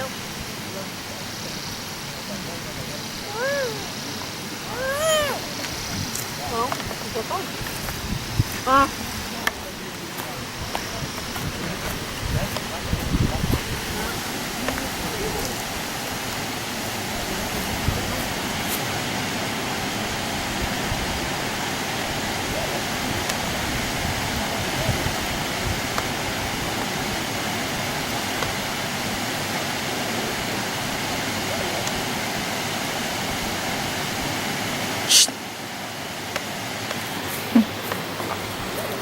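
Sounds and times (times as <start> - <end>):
running water rushing: 0.0 - 39.0
loud high-pitched sound: 35.1 - 35.4.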